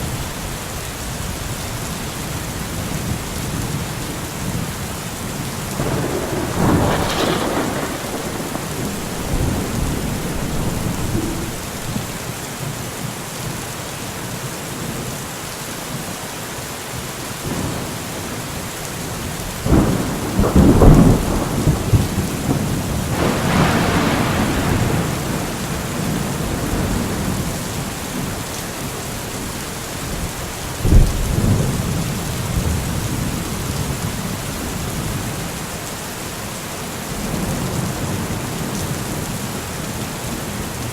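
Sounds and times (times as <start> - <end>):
steady rain falling: 0.0 - 40.9
thunder rumbling: 5.7 - 12.3, 19.2 - 34.0.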